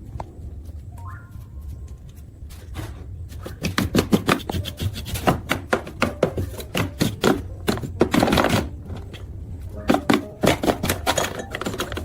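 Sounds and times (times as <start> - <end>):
steady low hum: 0.0 - 12.0
clicks and knocks of hand tools: 9.9 - 12.0.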